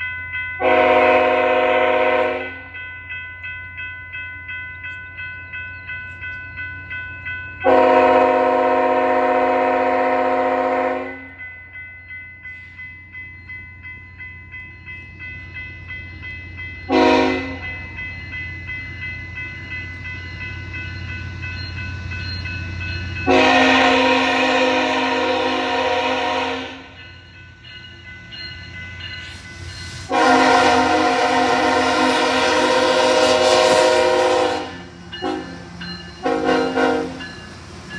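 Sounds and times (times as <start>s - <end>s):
locomotive air horn blasts: 0.6s - 2.7s, 7.6s - 11.3s, 16.9s - 17.6s, 23.3s - 26.9s, 30.1s - 35.6s, 36.2s - 37.2s
train rumbling: 0.6s - 37.9s
bell ringing: 26.9s - 29.8s, 34.7s - 37.9s.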